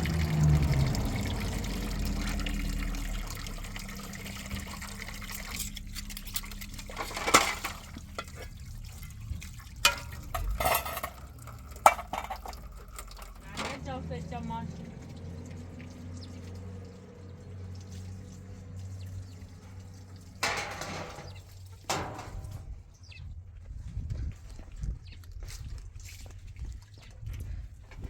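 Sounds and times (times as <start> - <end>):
water pouring: 0.0 - 13.8, 14.8 - 22.7
knocks and clinks: 5.4 - 8.4, 9.8 - 13.8, 20.4 - 22.7.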